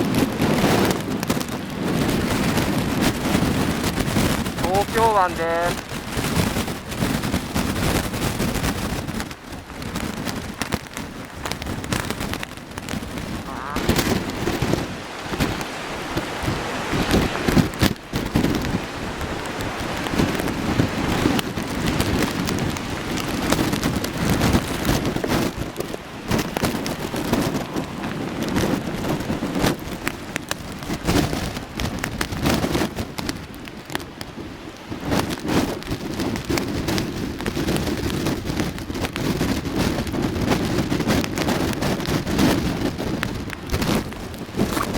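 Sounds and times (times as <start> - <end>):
heavy surf breaking: 0.0 - 44.9
wind buffeting microphone: 0.0 - 44.9.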